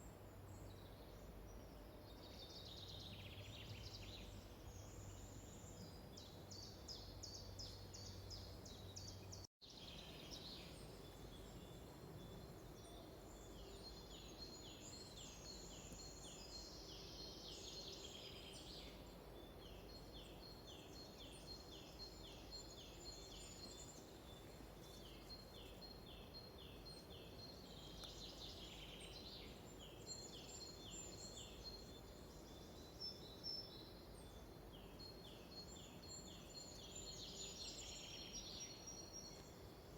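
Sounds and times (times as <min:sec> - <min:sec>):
low steady background hiss: 0:00.0 - 0:39.9
songbirds singing: 0:00.0 - 0:39.9.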